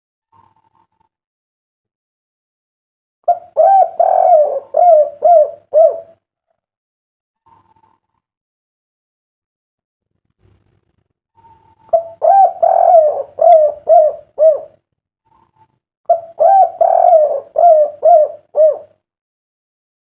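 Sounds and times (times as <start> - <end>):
dove cooing: 3.3 - 6.2, 11.7 - 14.8, 16.1 - 19.0.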